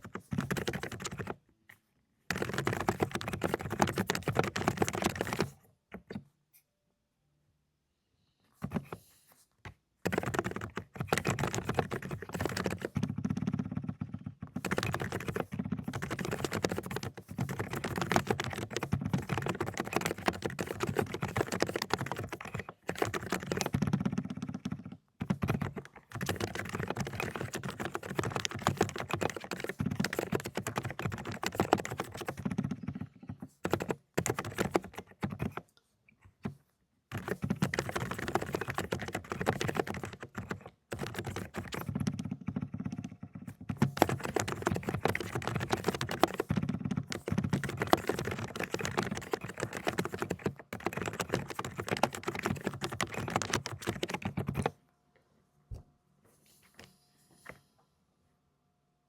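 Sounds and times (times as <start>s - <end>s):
fast typing on mechanical keyboard: 0.0s - 1.4s, 2.3s - 6.2s, 10.0s - 35.6s, 36.4s - 54.8s.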